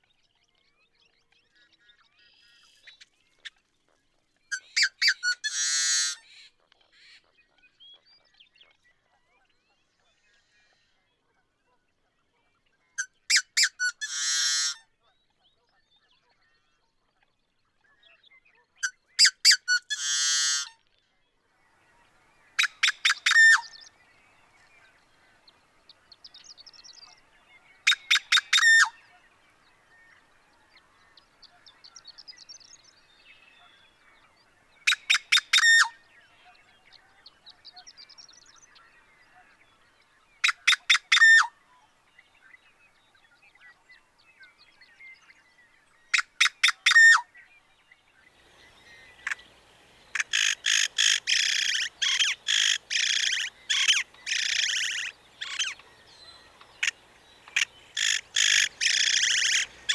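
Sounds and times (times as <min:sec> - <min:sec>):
faint bird calls: 0:17.8 - 0:59.9
blackbird song clicks and buzz: 0:20.8 - 0:59.9.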